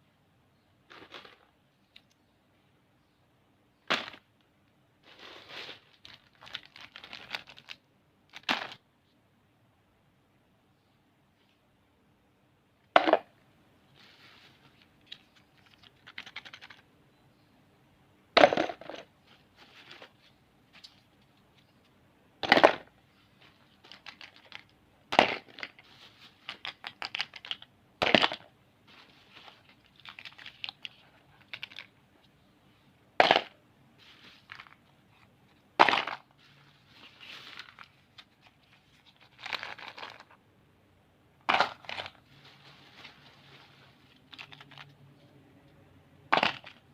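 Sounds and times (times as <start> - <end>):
plastic wrappers crinkling: 5.0 - 8.8, 14.0 - 16.8, 23.4 - 24.7, 25.3 - 27.7, 28.9 - 32.0, 35.9 - 40.4, 41.5 - 45.0.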